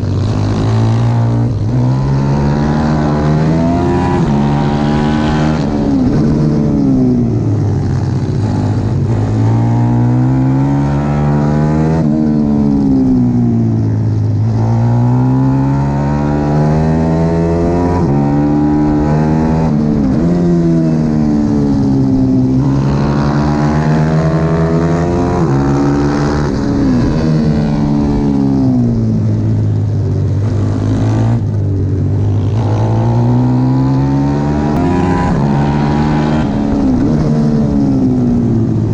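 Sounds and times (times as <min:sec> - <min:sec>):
pit bike engine revving: 0:00.2 - 0:06.6, 0:32.2 - 0:38.9.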